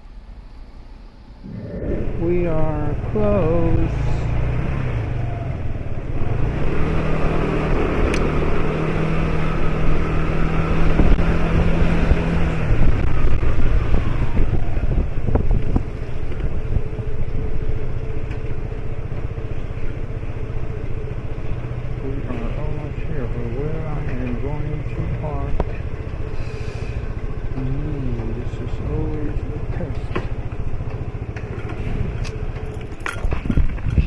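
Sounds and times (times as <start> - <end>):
road noise: 0.0 - 34.0
motorbike engine running: 1.5 - 34.0
wind on microphone: 10.8 - 16.9, 33.2 - 34.0.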